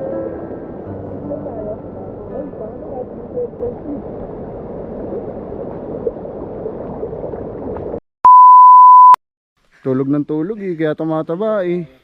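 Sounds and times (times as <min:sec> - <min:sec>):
censor bleep: 0:08.2 - 0:09.2.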